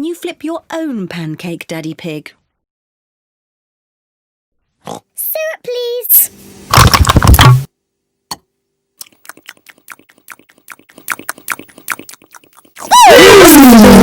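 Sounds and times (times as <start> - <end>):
cartoon wet eating smacks: 9.0 - 12.8.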